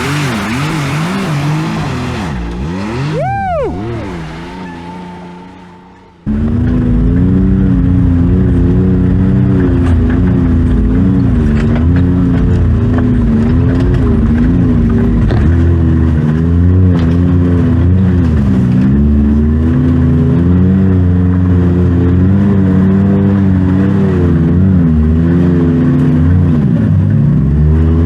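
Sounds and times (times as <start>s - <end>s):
utv engine revving: 0.0s - 28.0s
knocks and rattles: 9.2s - 16.3s.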